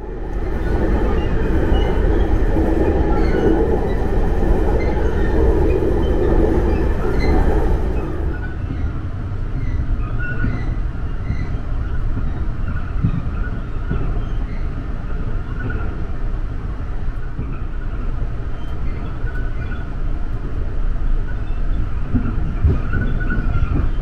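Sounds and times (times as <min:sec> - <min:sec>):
train rumbling inside carriage: 0:00.0 - 0:24.0.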